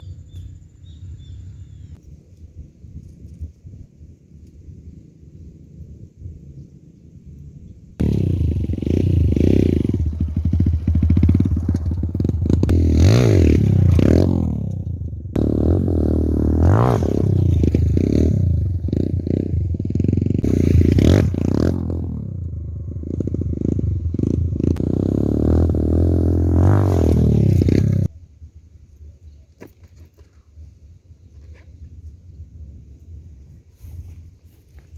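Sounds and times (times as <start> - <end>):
motorcycle engine revving: 8.0 - 28.1.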